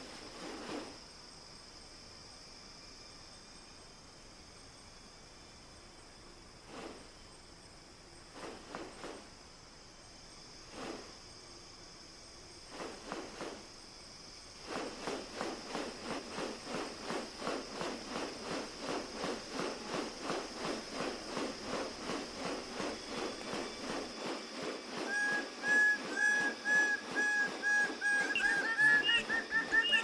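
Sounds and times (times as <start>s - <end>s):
high hiss: 0.0s - 30.0s
whistled bird notes: 25.0s - 30.0s.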